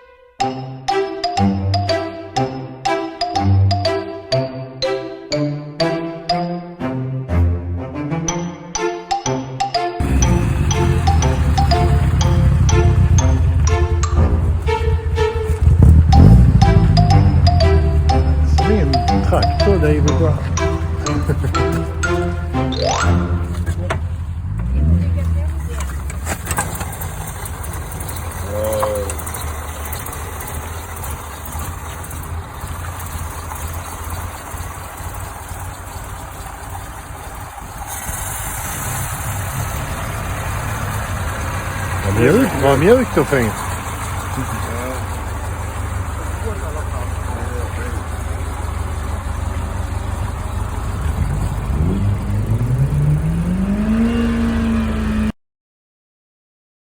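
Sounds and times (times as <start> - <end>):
car engine idling: 10.0 - 55.3.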